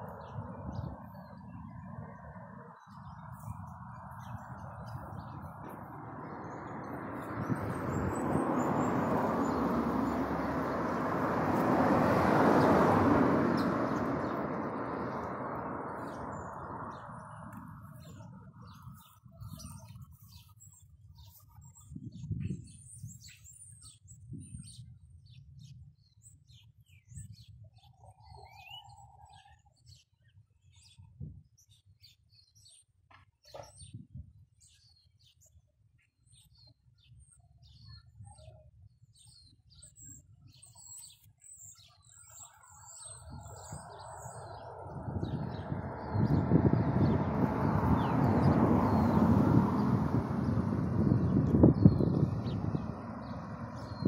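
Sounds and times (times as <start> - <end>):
small birds chirping: 0.0 - 54.0
broad rushing noise: 43.8 - 54.0.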